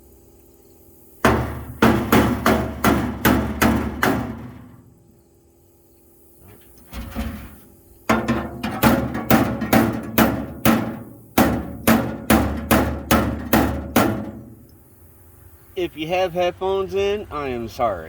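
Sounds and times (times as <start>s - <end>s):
hammer striking metal drawer: 1.3s - 4.8s, 8.1s - 14.6s.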